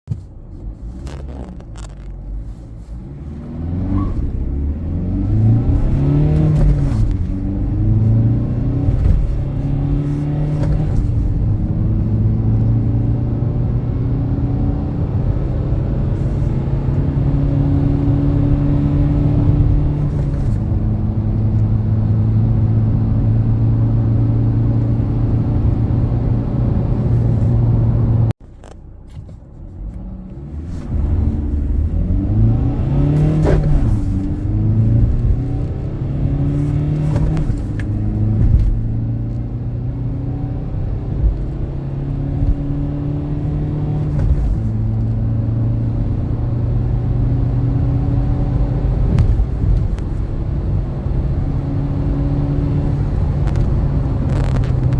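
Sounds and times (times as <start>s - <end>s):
diesel van accelerating: 0.0s - 54.9s.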